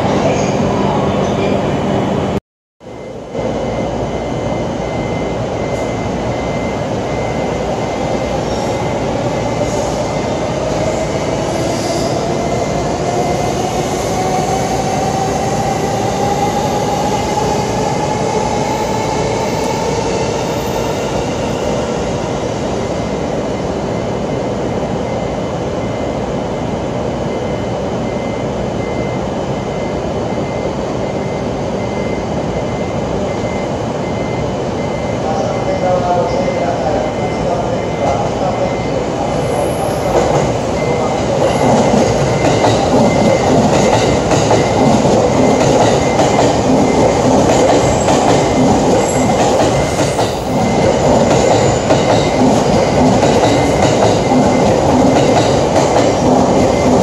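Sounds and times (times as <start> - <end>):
electric train rumbling: 0.0 - 57.0.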